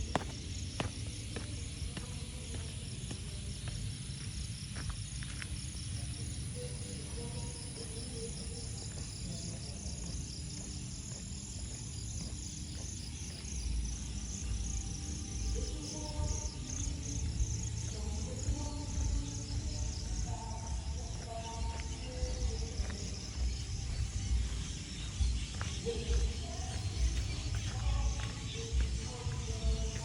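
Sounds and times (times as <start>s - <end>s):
insects chirping: 0.0s - 30.0s.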